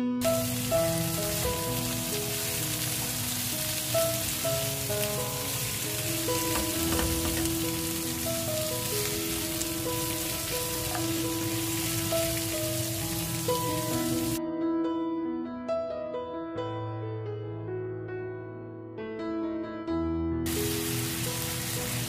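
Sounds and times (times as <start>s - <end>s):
background music of held notes: 0.0s - 14.4s
vegetables sizzling in a wok: 0.2s - 14.4s, 20.5s - 22.0s.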